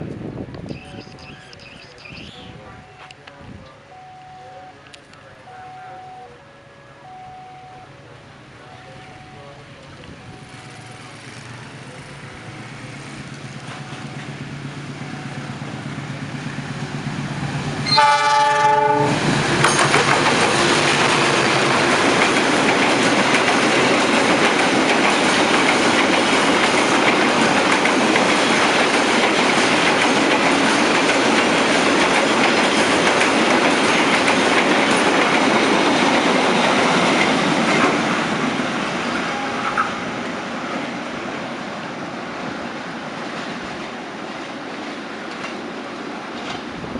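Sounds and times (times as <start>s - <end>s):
locomotive engine hum: 0.0s - 46.9s
train horn: 5.4s - 9.6s, 17.8s - 19.2s, 39.2s - 40.0s
train wheels clattering on rails: 12.8s - 40.0s, 43.1s - 45.7s, 46.3s - 46.8s.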